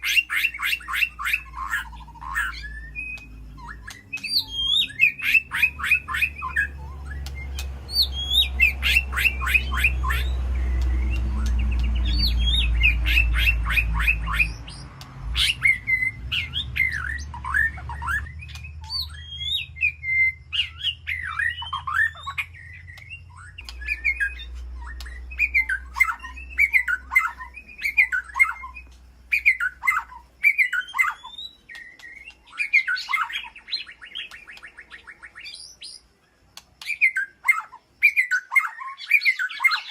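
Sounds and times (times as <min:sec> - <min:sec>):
bird singing: 0:00.0 - 0:39.9
low rumble: 0:09.6 - 0:27.7.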